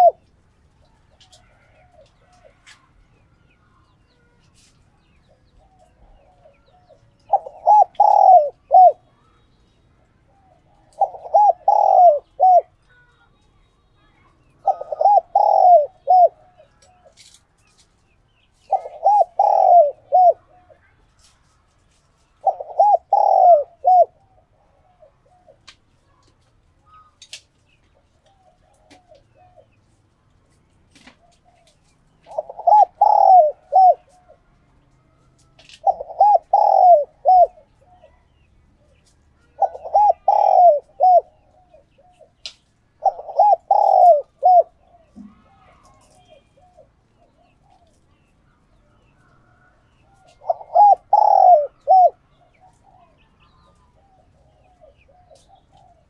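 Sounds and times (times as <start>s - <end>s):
dove cooing: 0.0s - 0.3s, 5.2s - 9.1s, 10.3s - 12.8s, 14.6s - 17.3s, 18.6s - 20.9s, 22.4s - 25.7s, 28.3s - 29.8s, 31.0s - 34.5s, 35.7s - 42.4s, 43.0s - 48.2s, 49.4s - 56.0s.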